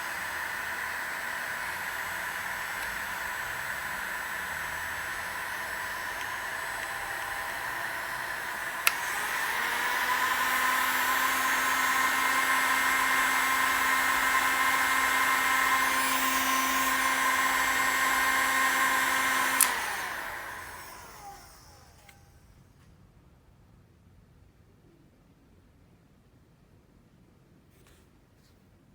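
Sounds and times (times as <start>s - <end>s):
hair dryer switch click: 0.0s - 22.2s
hair dryer running: 0.0s - 22.4s.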